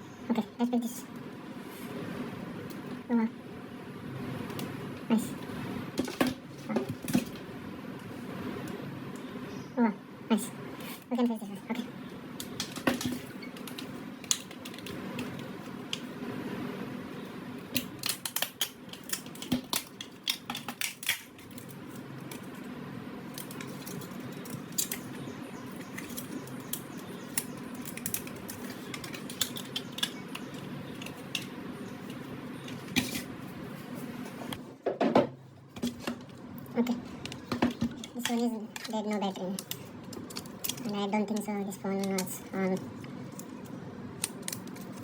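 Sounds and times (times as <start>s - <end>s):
steady low hum: 0.0s - 45.0s
plastic and metal items clattering: 11.7s - 16.2s, 17.7s - 22.7s, 23.3s - 33.4s.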